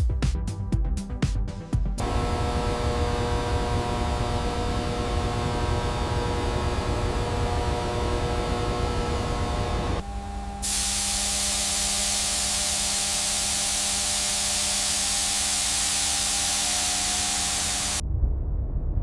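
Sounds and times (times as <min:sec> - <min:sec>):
machine hum: 0:02.0 - 0:18.0
pressurised spray hissing: 0:10.6 - 0:18.0.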